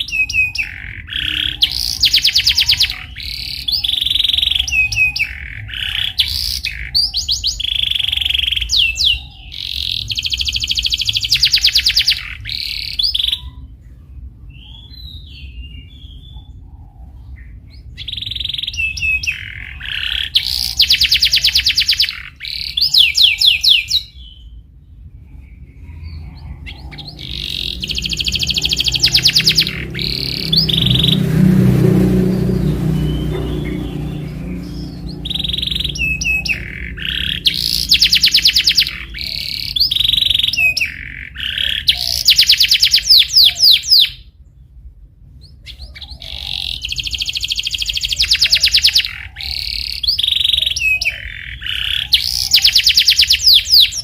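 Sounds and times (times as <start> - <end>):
canary singing trills: 0.0 - 54.0
low hum: 24.5 - 40.1.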